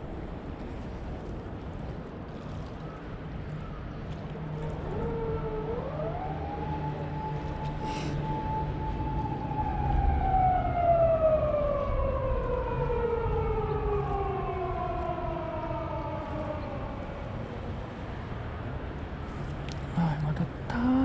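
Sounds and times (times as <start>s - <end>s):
siren winding down: 4.8s - 17.3s.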